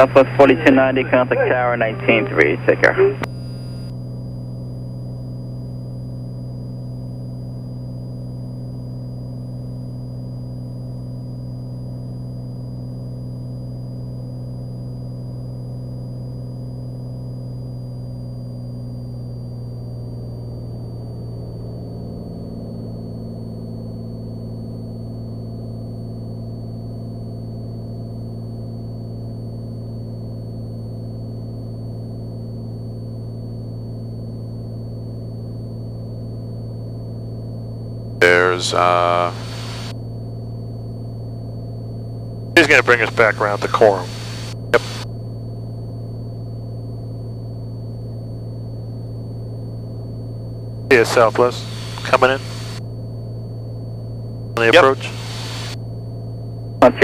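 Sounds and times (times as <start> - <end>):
propeller plane engine droning: 0.0 - 57.0.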